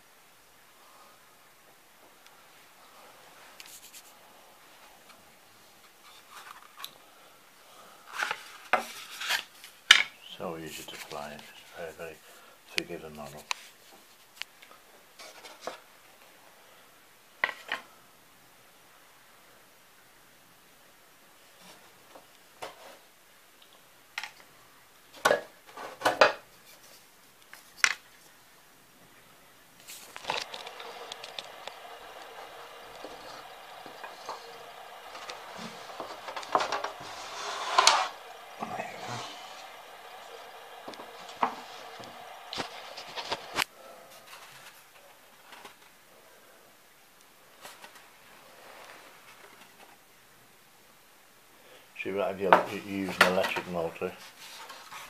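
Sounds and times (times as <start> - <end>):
rubbing and scratching: 3.4 - 4.2, 29.8 - 44.9
small hard objects clacking: 29.9 - 37.0.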